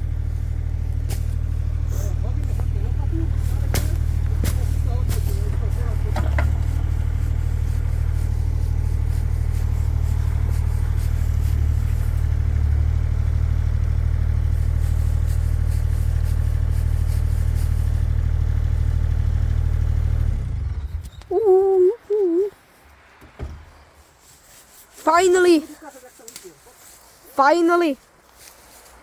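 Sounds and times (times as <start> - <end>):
excavator diesel engine running: 0.0 - 21.4.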